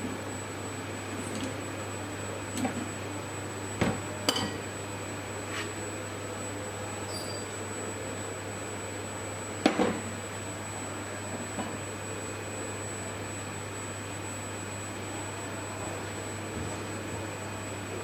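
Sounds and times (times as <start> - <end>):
low workshop hum: 0.0 - 18.0.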